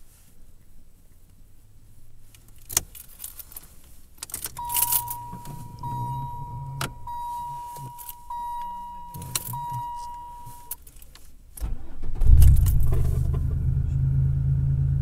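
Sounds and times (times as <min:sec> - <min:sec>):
car engine cranking: 0:02.4 - 0:14.1
keys jangling: 0:04.2 - 0:05.8, 0:06.9 - 0:08.3, 0:09.1 - 0:11.1
dashboard warning chime: 0:04.5 - 0:10.9.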